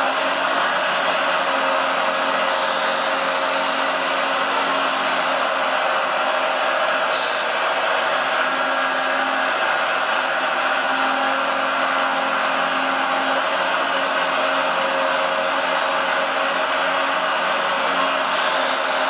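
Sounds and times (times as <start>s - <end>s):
small electric motors whirring: 2.2s - 5.4s, 17.8s - 19.0s.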